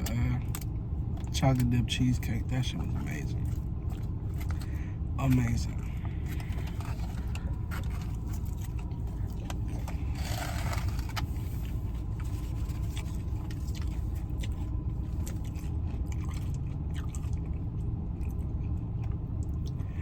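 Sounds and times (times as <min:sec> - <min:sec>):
steady low rumble: 0:00.0 - 0:20.0
person chewing: 0:05.7 - 0:20.0
scraping clicks of packaging: 0:09.5 - 0:11.6.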